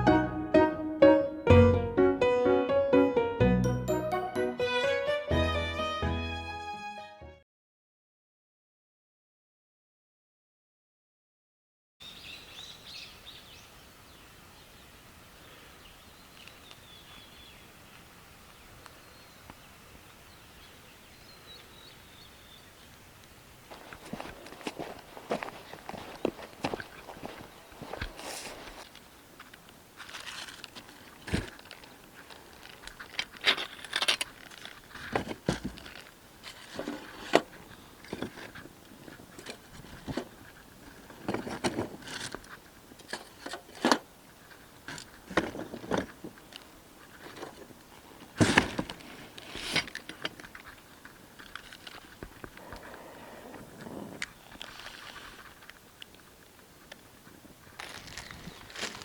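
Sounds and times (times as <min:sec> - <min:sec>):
rustling and scraping: 0:23.7 - 0:59.0.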